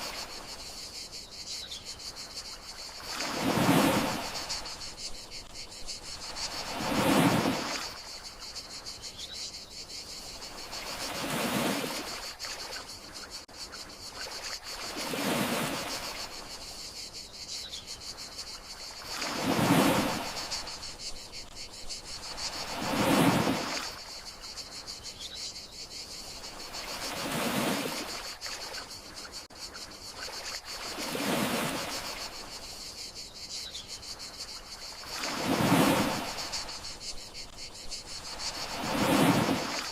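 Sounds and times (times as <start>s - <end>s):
crickets chirring: 0.0s - 39.9s
sea waves washing onto shore: 2.9s - 4.9s, 6.2s - 8.2s, 19.0s - 21.5s, 22.2s - 24.1s, 35.0s - 37.0s, 38.2s - 39.9s.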